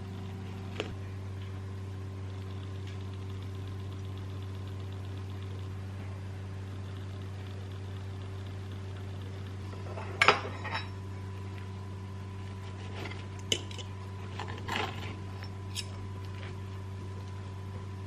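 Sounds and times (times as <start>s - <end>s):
low electrical hum: 0.0s - 18.0s
dishes and cutlery clinking: 9.9s - 11.0s.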